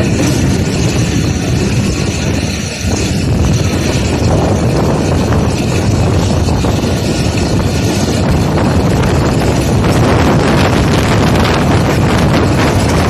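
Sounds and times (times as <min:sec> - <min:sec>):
train wheels rumbling on track: 0:00.0 - 0:13.0
wind rushing: 0:00.0 - 0:13.0.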